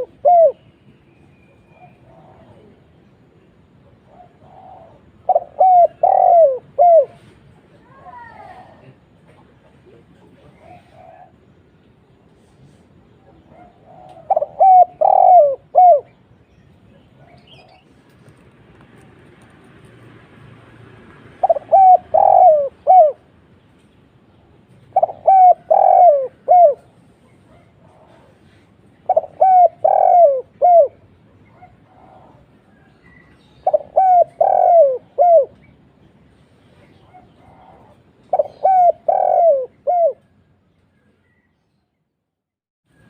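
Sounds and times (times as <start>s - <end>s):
dove cooing: 0.0s - 0.7s, 1.7s - 2.8s, 3.9s - 7.3s, 10.3s - 11.5s, 13.3s - 16.2s, 21.4s - 23.4s, 24.8s - 35.7s, 36.9s - 40.4s.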